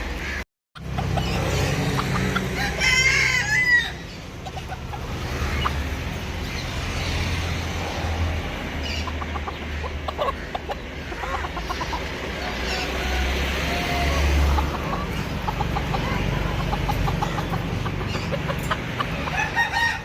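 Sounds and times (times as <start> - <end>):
chicken clucking: 0.8 - 3.1, 4.2 - 6.8, 8.8 - 20.0
rooster crowing: 2.5 - 4.0, 19.3 - 20.0.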